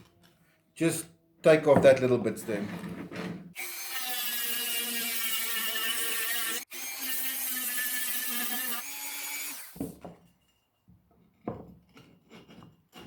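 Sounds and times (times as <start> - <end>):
power tool cutting wood: 3.6 - 9.9.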